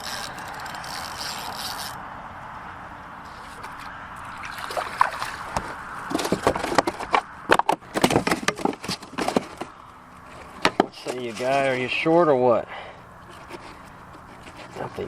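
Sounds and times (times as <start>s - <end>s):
water splashing: 3.3s - 6.0s
knocks and clicks against kayak: 5.5s - 9.7s.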